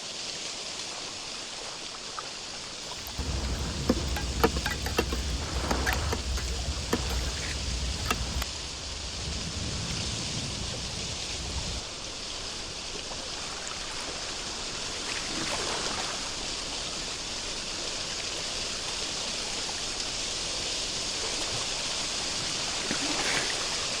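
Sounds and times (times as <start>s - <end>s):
sharp clicks: 2.9s - 8.5s
water hissing: 2.9s - 8.5s.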